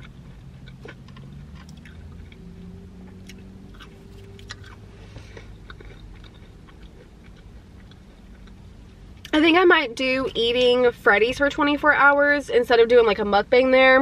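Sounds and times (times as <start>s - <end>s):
person chewing: 0.0s - 9.3s
low steady hum: 0.0s - 14.0s.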